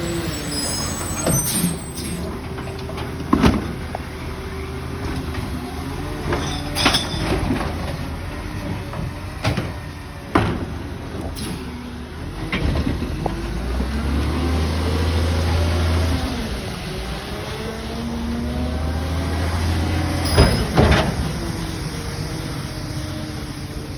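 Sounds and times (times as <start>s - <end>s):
hydraulic whine: 0.0s - 3.8s
garbage truck engine running: 0.0s - 23.9s
metal clanks and bangs: 5.0s - 13.5s, 20.1s - 21.8s.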